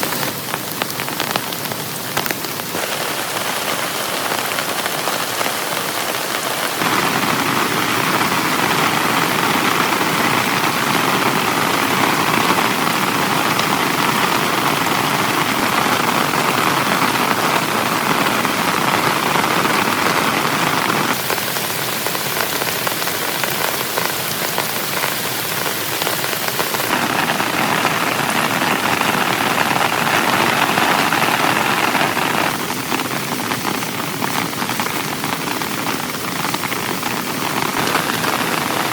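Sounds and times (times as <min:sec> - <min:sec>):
heavy rain on a tent: 0:00.0 - 0:38.9.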